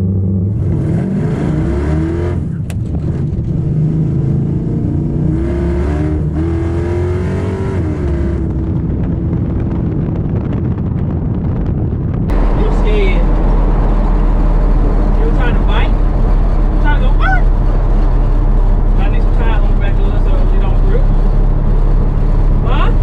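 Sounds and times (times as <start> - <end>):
truck engine revving hard: 0.0 - 8.6.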